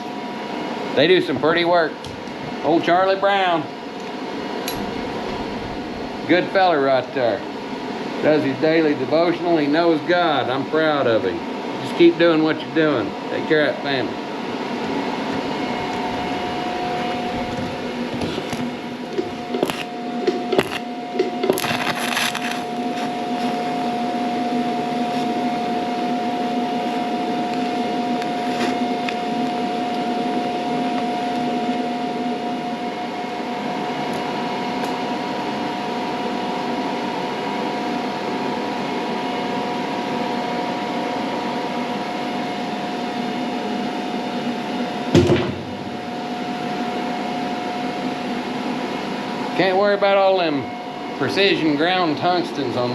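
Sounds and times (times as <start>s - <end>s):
welding arc buzzing: 3.9s - 6.8s, 15.3s - 30.3s, 41.6s - 50.4s
sharp crackle: 20.6s - 20.8s, 21.5s - 24.3s.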